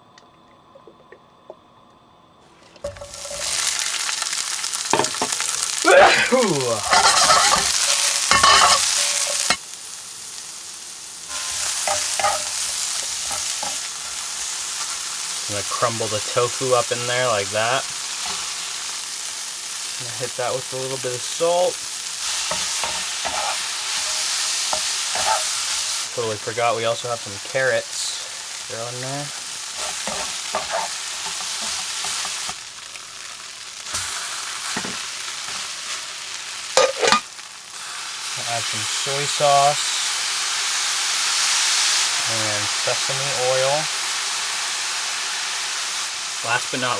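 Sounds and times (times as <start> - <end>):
food sizzling in a frying pan: 2.7 - 46.9
utensil scraping a pan: 6.8 - 9.6, 11.3 - 14.2, 22.4 - 26.0, 29.7 - 32.6, 36.8 - 37.3.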